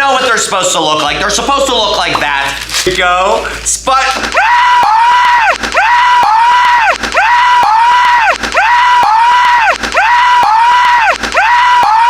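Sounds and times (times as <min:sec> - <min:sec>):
looped high-pitched wailing: 0:04.2 - 0:12.0.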